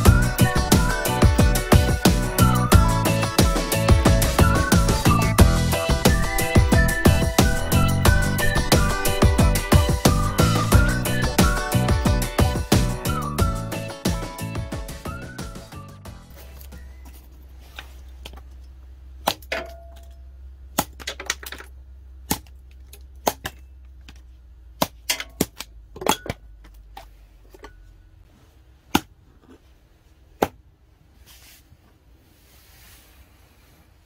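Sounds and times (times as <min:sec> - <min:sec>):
low steady hum: 0:16.0 - 0:34.0.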